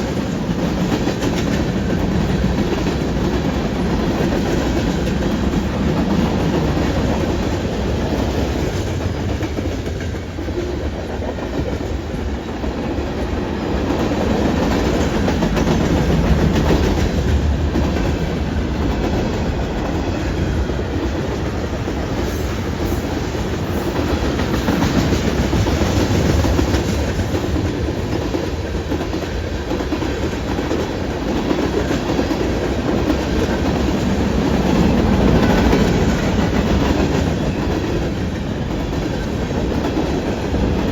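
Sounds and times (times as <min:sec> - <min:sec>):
freight train wheels clattering: 0:00.0 - 0:40.9.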